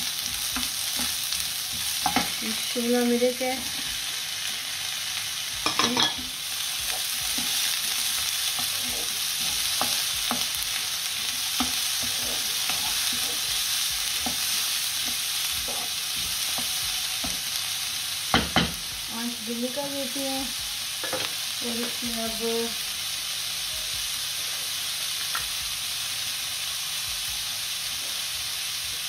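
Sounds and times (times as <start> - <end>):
vegetables sizzling in a wok: 0.0 - 29.0
wooden spoon scraping a pan: 11.2 - 17.4.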